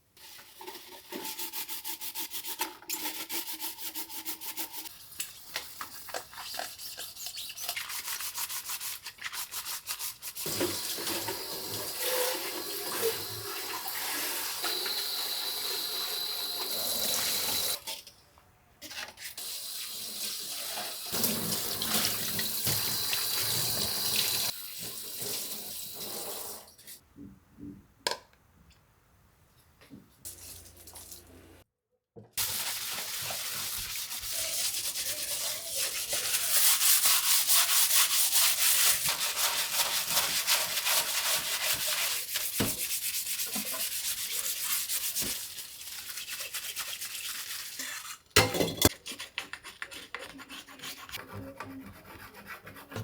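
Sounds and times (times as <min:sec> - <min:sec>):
tap water running into sink: 0:10.5 - 0:17.8, 0:19.8 - 0:26.6.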